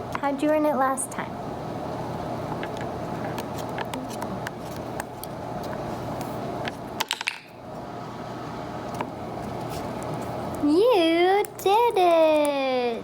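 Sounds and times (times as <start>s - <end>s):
room noise hum: 0.0s - 13.0s.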